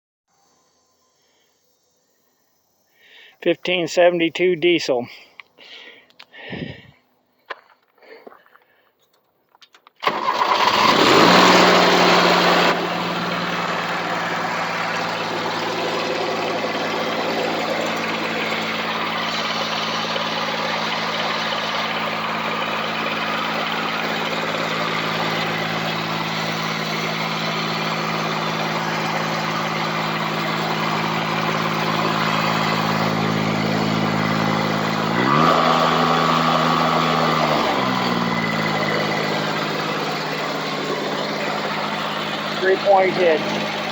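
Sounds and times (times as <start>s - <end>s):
diesel tractor engine starting and idling: 10.0s - 43.9s.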